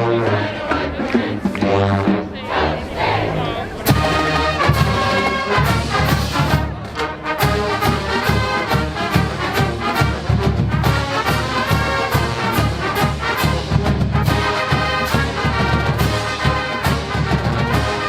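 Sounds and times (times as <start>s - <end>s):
brass section playing: 0.0s - 18.0s
steady drum beat: 3.8s - 18.0s.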